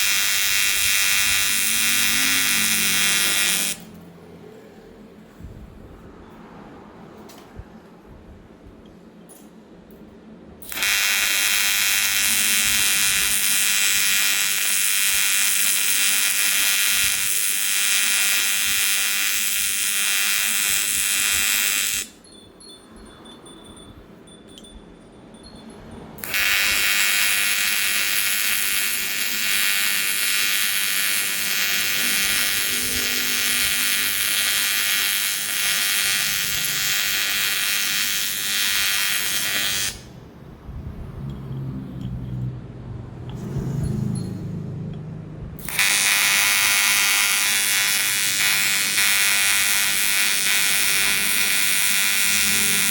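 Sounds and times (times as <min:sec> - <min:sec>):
welding arc buzzing: 0:00.0 - 0:04.0, 0:10.6 - 0:22.3, 0:26.2 - 0:40.2, 0:45.6 - 0:52.9.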